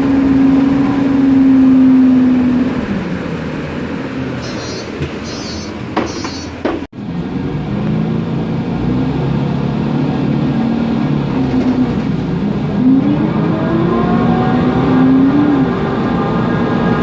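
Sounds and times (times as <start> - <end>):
bus engine accelerating: 0.0 - 17.0.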